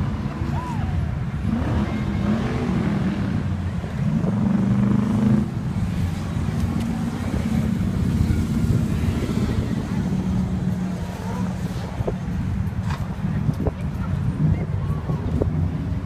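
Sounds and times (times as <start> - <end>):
car engines rumbling: 0.0 - 16.0
engine revving: 1.4 - 11.8.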